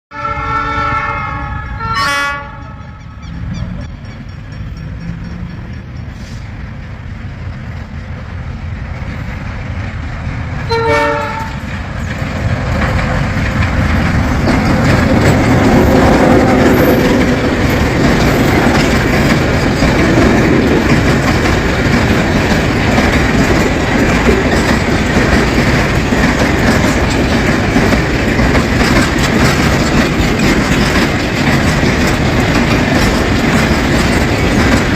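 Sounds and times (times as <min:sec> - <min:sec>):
locomotive horn blast: 0:00.1 - 0:03.2, 0:10.7 - 0:11.7
locomotive engine rumble: 0:00.9 - 0:34.9
freight wagon wheels clacking: 0:03.6 - 0:34.9.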